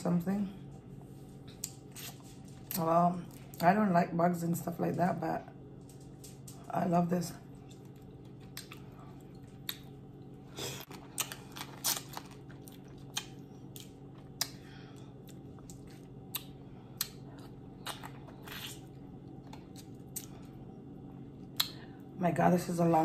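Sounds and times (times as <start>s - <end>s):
steady low hum: 0.0s - 23.0s
close chewing and wet mouth sounds: 7.5s - 21.8s.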